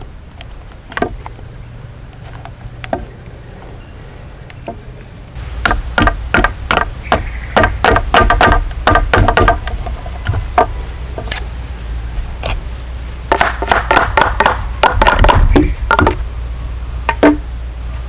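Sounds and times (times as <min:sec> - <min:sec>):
steady low hum: 0:00.0 - 0:18.0
rapid knocks on wood: 0:05.6 - 0:10.8, 0:13.3 - 0:16.2, 0:17.1 - 0:17.4.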